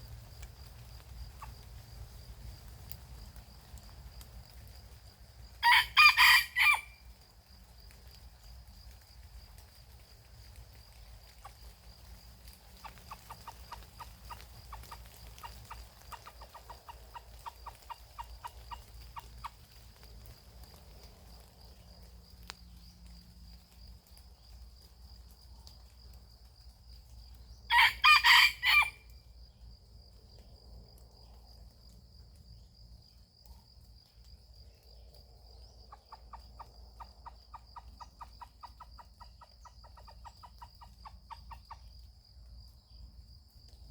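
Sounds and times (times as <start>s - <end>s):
rooster crowing: 5.6s - 7.0s, 27.7s - 29.1s
rapid clucking: 12.7s - 19.8s.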